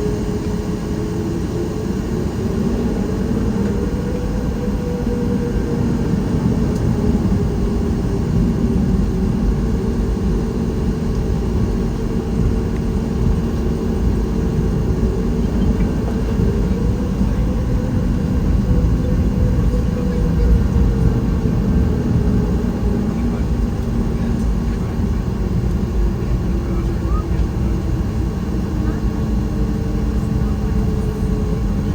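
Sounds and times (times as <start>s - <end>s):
airplane cabin low roar: 0.0s - 31.9s.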